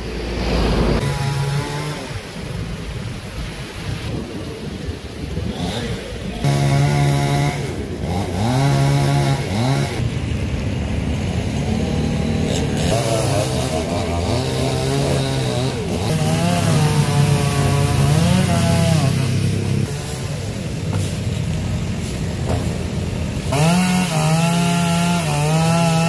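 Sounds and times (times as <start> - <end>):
chainsaw revving: 0.4 - 2.5, 5.4 - 10.2, 11.2 - 26.0.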